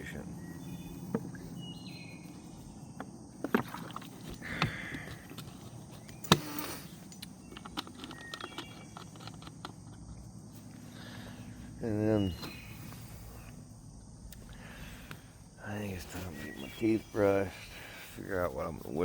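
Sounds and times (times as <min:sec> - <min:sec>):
drink handling clicks and knocks: 0:03.0 - 0:10.2.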